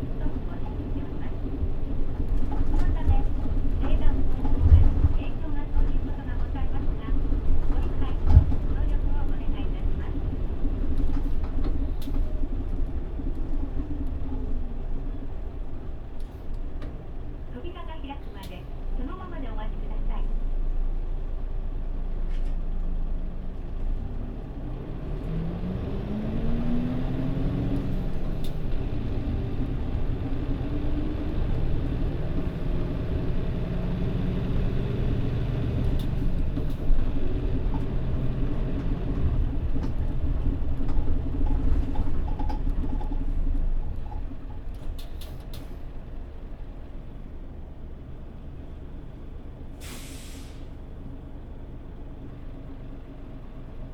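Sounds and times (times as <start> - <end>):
bus diesel engine: 0.0 - 53.9.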